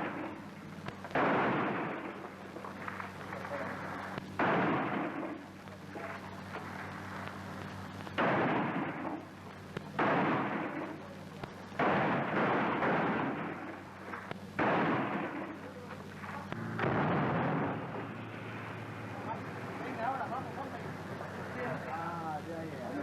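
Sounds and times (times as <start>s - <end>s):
steady low hum: 0.0s - 23.0s
gunshots: 1.1s - 2.3s, 4.3s - 5.4s, 8.2s - 9.2s, 10.0s - 11.0s, 11.8s - 13.8s, 14.6s - 15.6s, 16.5s - 18.8s.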